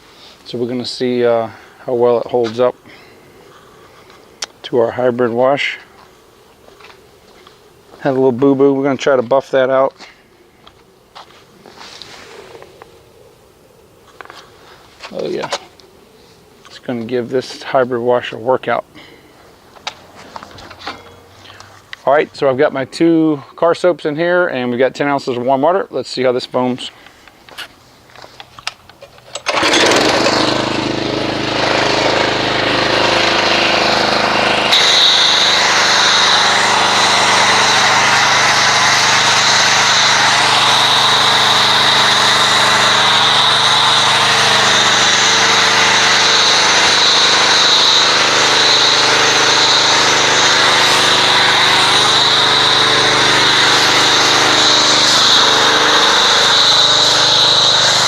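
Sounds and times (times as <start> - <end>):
pressure washer running: 29.4 - 58.0
foam cannon spraying hiss: 32.3 - 58.0.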